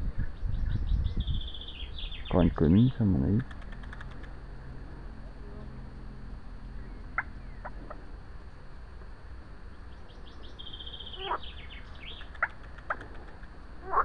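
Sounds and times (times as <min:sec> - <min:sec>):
low background noise: 0:00.0 - 0:14.0
birds chirping: 0:00.2 - 0:04.4, 0:06.6 - 0:08.1, 0:09.7 - 0:14.0
bird high trill: 0:10.2 - 0:12.5.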